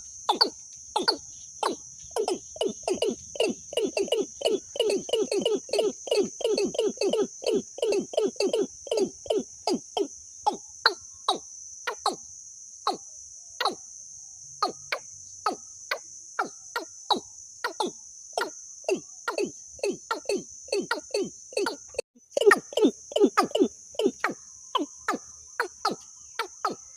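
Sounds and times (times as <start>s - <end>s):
high-pitched insect drone: 0.0s - 26.9s
bird calling descending notes: 0.3s - 9.8s.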